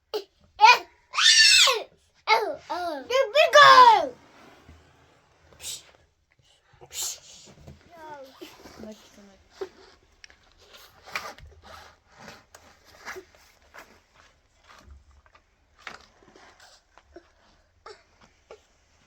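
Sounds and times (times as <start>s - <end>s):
rustles and scrapes of handling: 3.6s - 19.0s.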